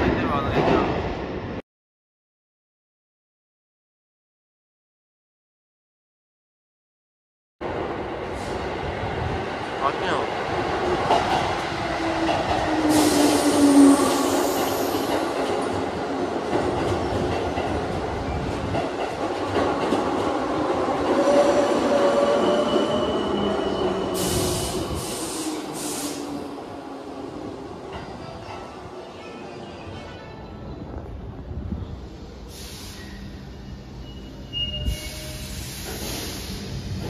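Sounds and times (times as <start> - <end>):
train wheels rumbling on rail: 7.6 - 29.2, 30.9 - 37.0
short hiss bursts: 34.9 - 36.9.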